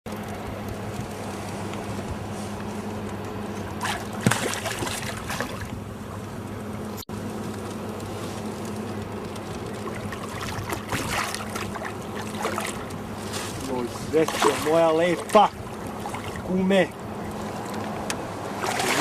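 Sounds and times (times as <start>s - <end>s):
steady low hum: 0.1s - 19.0s
water splashing against boat: 3.6s - 6.2s, 8.1s - 19.0s.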